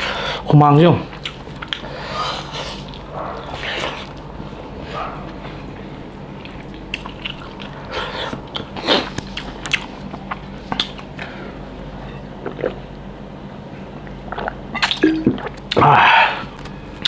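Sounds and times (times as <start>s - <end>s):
close-up chewing: 1.1s - 11.3s.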